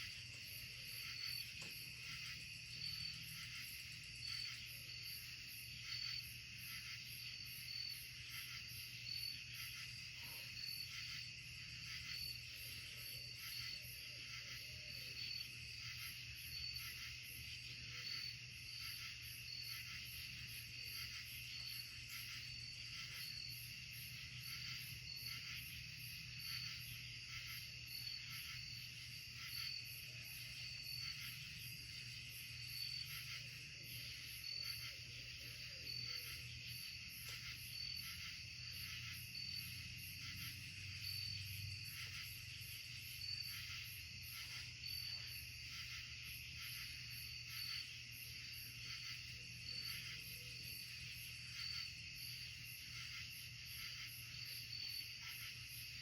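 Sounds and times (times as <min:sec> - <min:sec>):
night insects trilling: 0:00.0 - 0:56.0.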